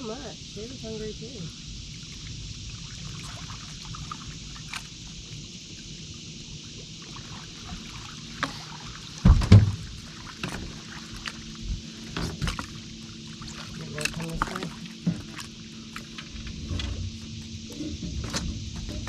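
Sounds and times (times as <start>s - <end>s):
wind and water hiss: 0.0s - 19.0s
heavy thump: 9.2s - 9.8s.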